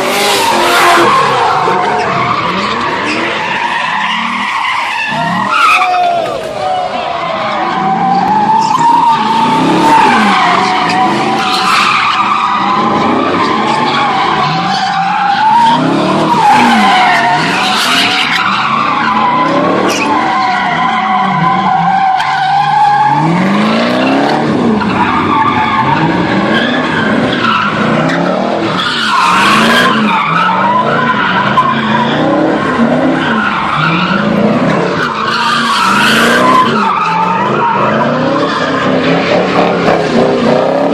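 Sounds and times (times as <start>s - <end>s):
car engine revving: 0.0s - 5.6s, 6.3s - 40.9s
tyre squeal: 7.2s - 23.9s.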